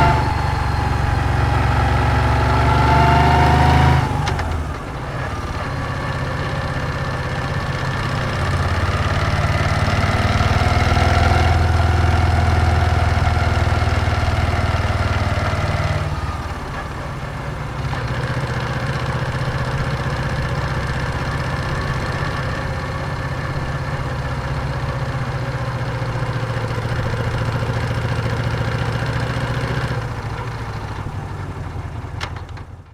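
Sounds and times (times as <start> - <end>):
motorcycle engine idling: 4.6 - 10.5, 16.2 - 32.9.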